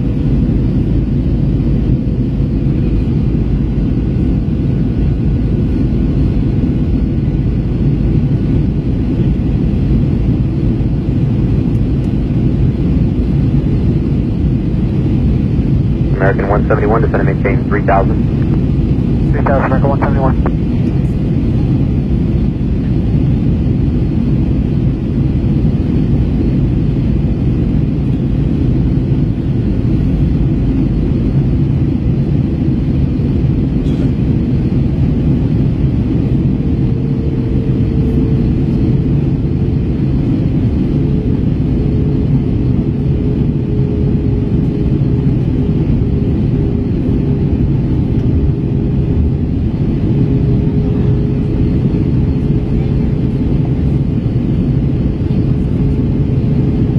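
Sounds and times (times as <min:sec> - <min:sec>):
airplane cabin engine rumble: 0:00.0 - 0:56.9
faint steady hum: 0:16.1 - 0:21.1.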